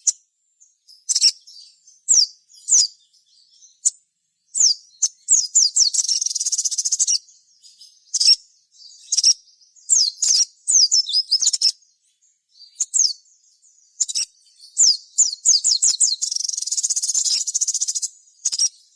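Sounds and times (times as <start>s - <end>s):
fast buzzy bird trill: 4.6s - 7.2s, 14.0s - 18.9s.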